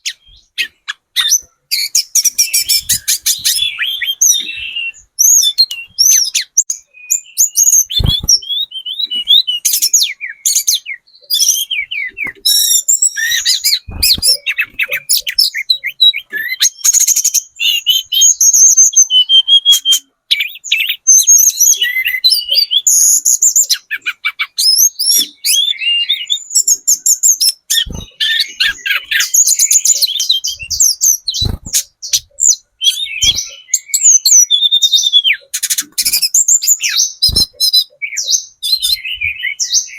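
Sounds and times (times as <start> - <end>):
flycatcher singing chirps and trills: 0.0 - 39.9.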